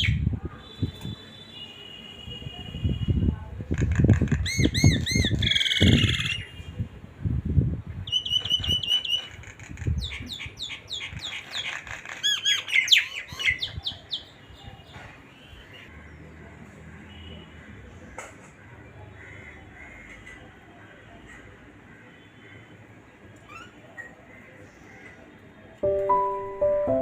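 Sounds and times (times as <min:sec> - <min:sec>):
birds chirping and trilling: 0:08.1 - 0:16.2.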